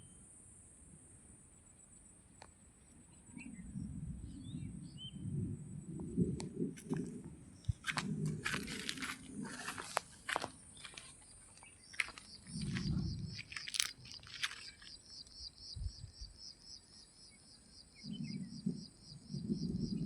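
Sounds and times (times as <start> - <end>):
sharp crunching clicks: 6.4 - 15.4.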